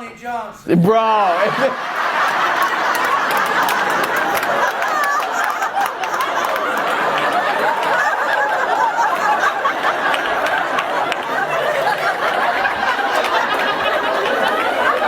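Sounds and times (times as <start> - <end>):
audience laughing: 1.1 - 15.0
scattered clapping: 1.8 - 15.0.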